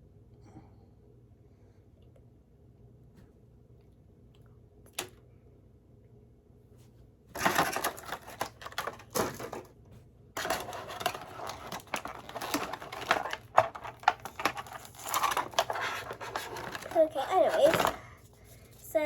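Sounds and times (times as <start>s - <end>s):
plastic packaging rustling: 7.4s - 9.8s, 10.4s - 19.0s.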